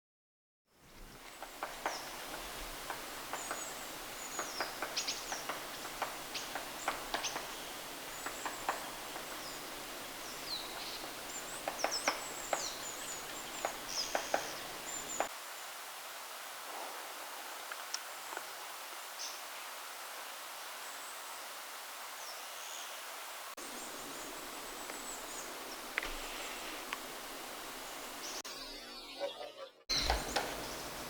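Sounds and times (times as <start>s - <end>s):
woodpecker tapping at bark: 1.2s - 15.3s, 29.9s - 30.9s
small birds high short calls: 1.8s - 15.3s.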